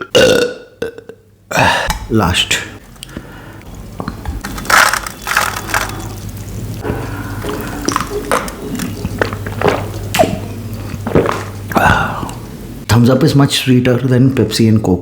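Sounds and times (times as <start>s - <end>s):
man gulping a drink: 2.8s - 12.5s.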